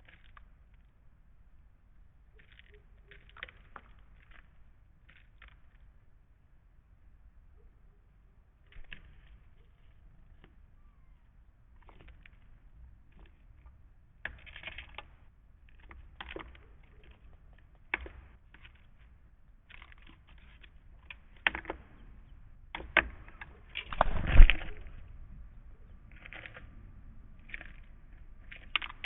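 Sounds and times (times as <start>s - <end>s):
birds pecking at wooden feeder: 2.1s - 6.2s, 8.5s - 29.0s
rustling bump: 23.9s - 25.0s.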